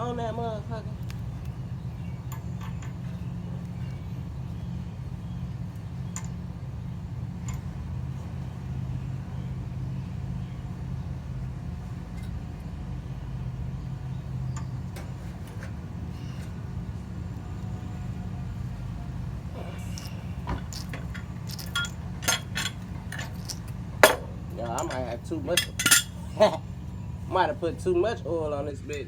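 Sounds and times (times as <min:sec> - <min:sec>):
low mechanical hum: 0:00.0 - 0:29.0
metallic clicks and clinks: 0:19.8 - 0:26.4.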